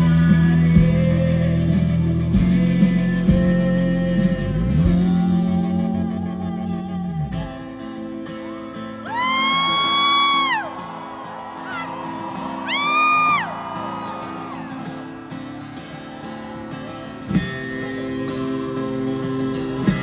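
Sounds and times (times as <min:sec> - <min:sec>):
live rock band playing: 0:00.0 - 0:06.1, 0:11.4 - 0:20.0
high voice crying out: 0:09.0 - 0:10.8, 0:11.6 - 0:14.7.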